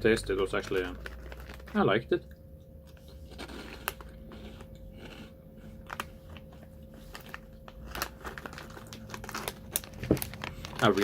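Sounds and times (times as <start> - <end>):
person chewing crunchy crackers: 2.8 - 11.0.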